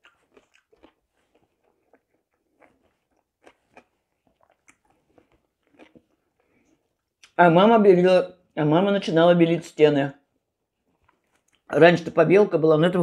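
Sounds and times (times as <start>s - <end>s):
person chewing with mouth clicks: 0.0s - 7.4s, 10.9s - 11.7s.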